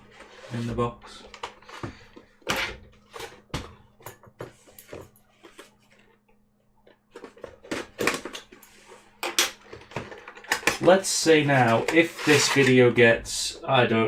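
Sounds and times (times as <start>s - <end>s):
card packs crinkling and rustling: 9.7s - 13.0s.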